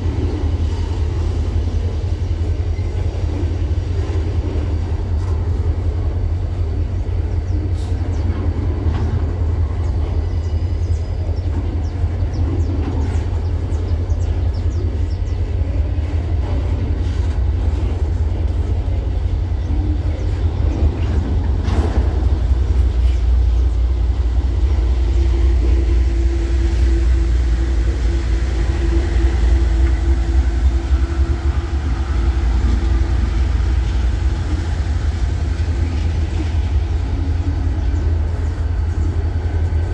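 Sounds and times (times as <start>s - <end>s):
train rumbling on rails: 0.0s - 39.9s
steady droning tone: 23.2s - 39.9s.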